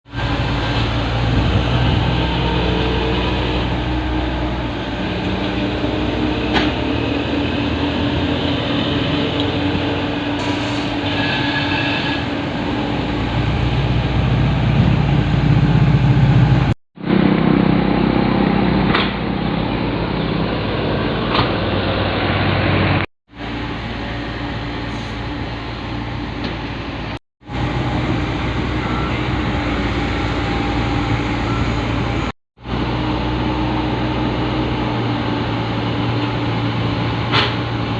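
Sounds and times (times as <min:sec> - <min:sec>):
heavy machinery engine running: 0:00.1 - 0:37.9.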